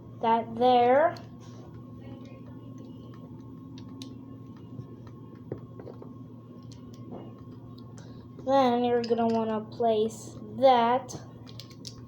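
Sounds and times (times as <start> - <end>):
low background hum: 0.0 - 12.0
lego bricks clicking: 11.4 - 12.0.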